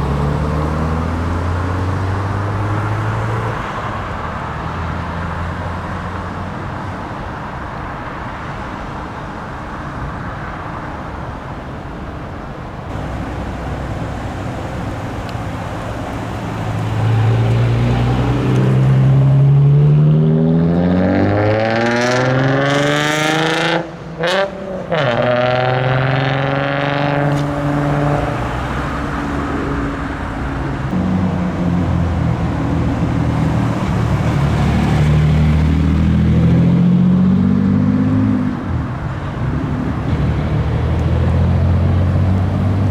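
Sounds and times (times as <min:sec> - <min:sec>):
car engine accelerating: 0:00.0 - 0:06.6, 0:12.9 - 0:42.9
second engine revving: 0:12.9 - 0:38.7, 0:39.9 - 0:42.9.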